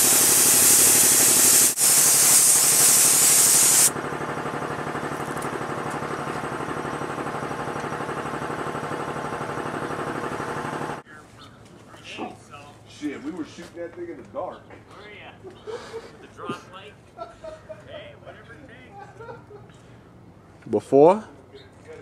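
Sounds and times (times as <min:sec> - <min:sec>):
spray gun hissing: 0:00.0 - 0:03.9
pulsing machine: 0:00.0 - 0:11.0.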